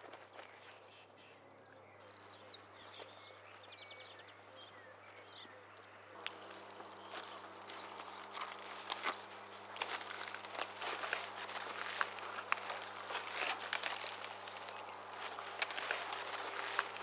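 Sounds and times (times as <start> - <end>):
small birds chirping: 0.0 - 17.0
steady low hum: 2.3 - 17.0.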